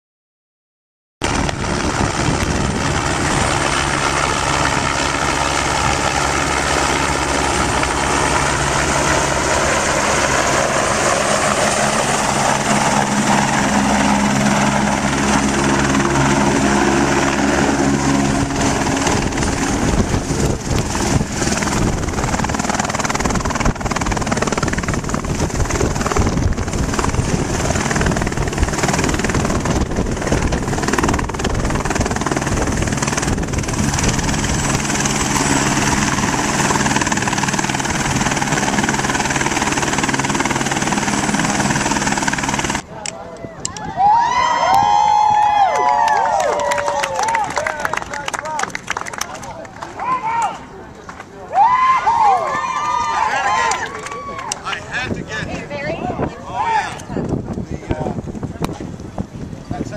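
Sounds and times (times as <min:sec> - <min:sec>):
helicopter engine and rotor: 0:01.2 - 0:42.9, 0:54.4 - 0:59.9.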